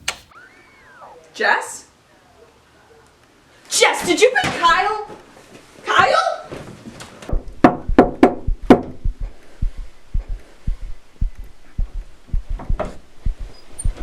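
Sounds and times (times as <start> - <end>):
heartbeat low thumps: 7.3 - 14.0.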